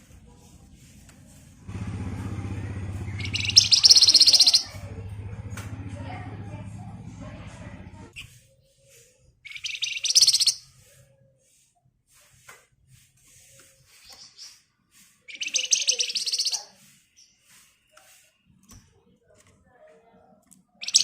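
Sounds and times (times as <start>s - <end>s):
faint bird chirps: 2.2s - 4.9s, 8.1s - 11.6s, 13.4s - 18.6s, 20.8s - 21.0s
songbird rattling trills: 2.4s - 4.9s, 9.4s - 10.6s, 15.3s - 17.3s, 20.8s - 21.0s.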